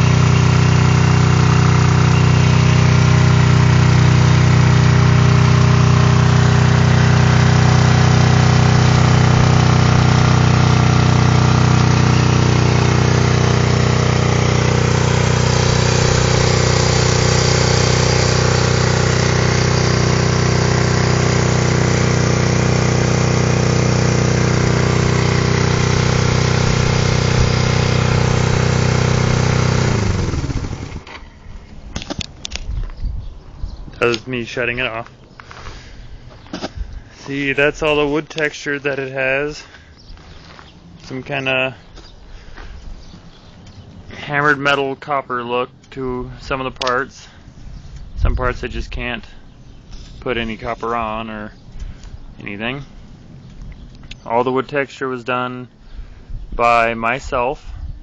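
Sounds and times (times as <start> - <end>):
motorcycle engine idling: 0.0 - 31.8.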